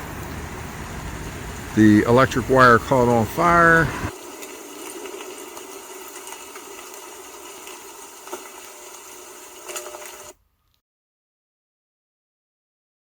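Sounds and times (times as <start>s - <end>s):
burning wire hissing: 0.0s - 10.2s.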